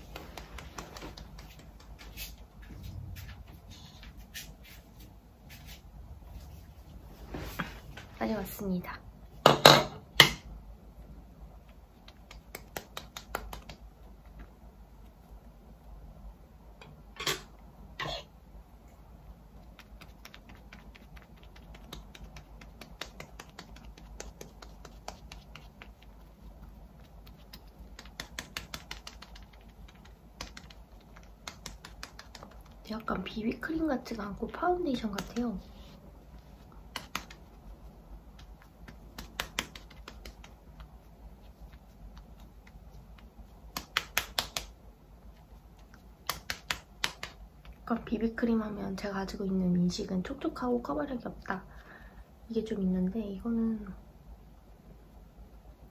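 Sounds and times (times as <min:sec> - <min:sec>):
soft tapping on skin: 0:00.0 - 0:02.6, 0:11.6 - 0:15.2, 0:19.5 - 0:33.1, 0:34.9 - 0:47.8.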